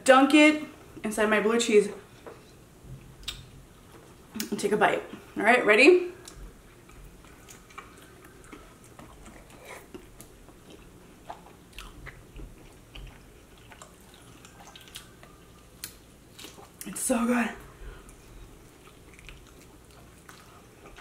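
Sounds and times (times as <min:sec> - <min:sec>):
biting and chewing: 0:06.3 - 0:16.9, 0:18.0 - 0:21.0.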